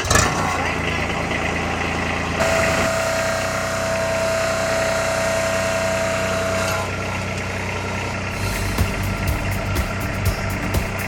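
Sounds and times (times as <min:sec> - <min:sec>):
engine running: 0:00.0 - 0:11.0
high steady whine: 0:02.4 - 0:07.6, 0:08.3 - 0:11.0.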